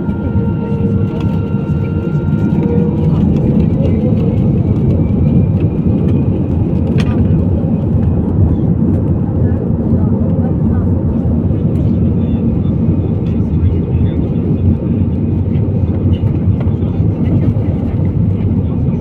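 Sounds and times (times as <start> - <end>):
jet engine rumble in cabin: 0.0 - 19.0.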